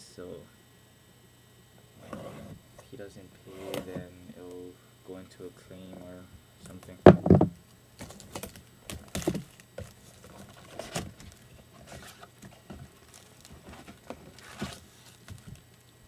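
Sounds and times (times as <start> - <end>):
cardboard and plastic crinkling: 6.7 - 15.8
loud knock: 7.1 - 7.6.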